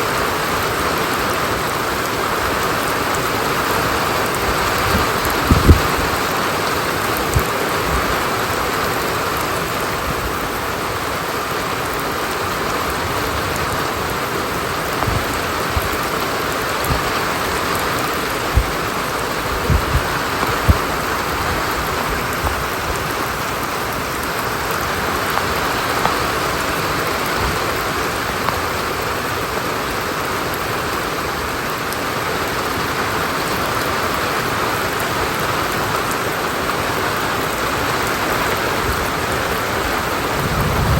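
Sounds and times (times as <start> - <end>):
steady rain hissing: 0.0 - 40.9
short low thuds: 18.5 - 21.6.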